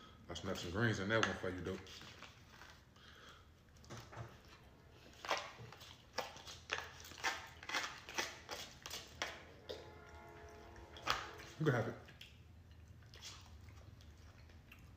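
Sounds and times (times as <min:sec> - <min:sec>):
chewing and smacking food: 0:01.1 - 0:09.4, 0:11.4 - 0:14.9.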